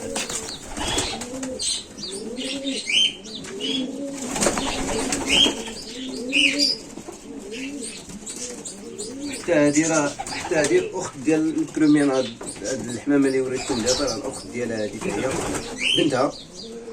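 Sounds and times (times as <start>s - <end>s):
wings fluttering: 0.0s - 2.8s, 3.4s - 10.9s, 14.9s - 16.0s
pigeons cooing: 0.0s - 16.9s
small birds chirping: 0.0s - 16.9s.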